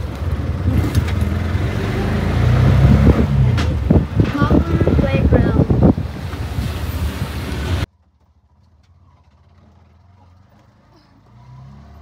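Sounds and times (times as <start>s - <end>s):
auto-rickshaw engine running: 0.0s - 12.0s
wind rushing on microphone: 2.7s - 7.9s.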